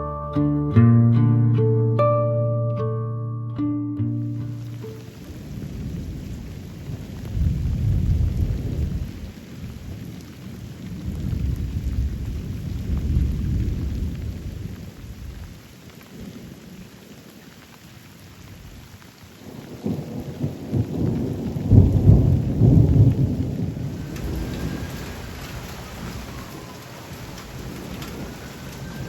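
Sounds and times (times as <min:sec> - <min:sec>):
steady rain: 0:04.2 - 0:29.0
thunder rumbling: 0:04.5 - 0:15.5, 0:19.6 - 0:29.0.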